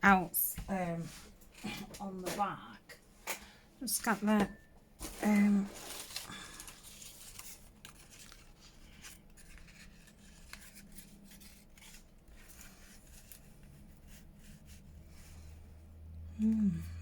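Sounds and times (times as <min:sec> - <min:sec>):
low steady hum: 0:00.0 - 0:17.0
paper and card rustling: 0:05.0 - 0:15.5.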